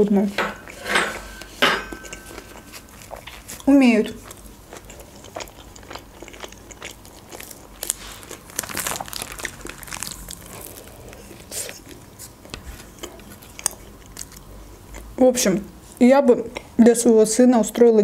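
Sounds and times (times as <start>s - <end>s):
person chewing: 1.4s - 15.2s
plastic wrap crinkling: 7.0s - 12.1s.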